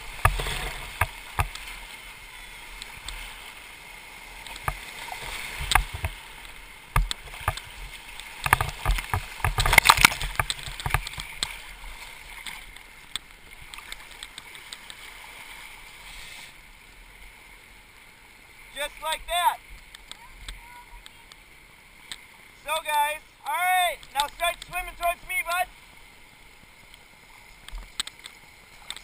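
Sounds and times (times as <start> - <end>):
splashes and knocks in water: 4.4 - 6.2, 6.9 - 12.7.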